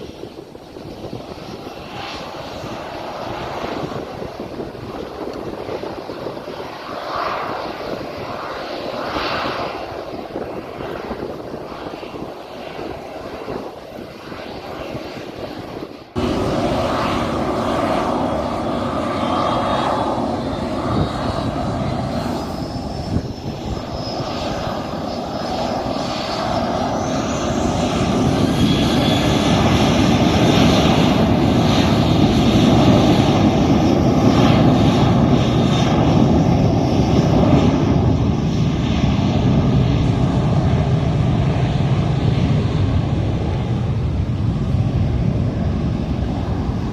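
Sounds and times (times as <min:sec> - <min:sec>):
jet airliner engines running: 0:00.0 - 0:46.9
high engine whine rising: 0:16.1 - 0:30.0.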